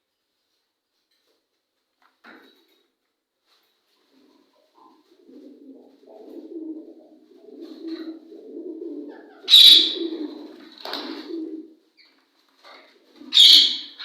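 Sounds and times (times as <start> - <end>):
pigeons cooing: 4.2 - 11.8, 12.7 - 14.0.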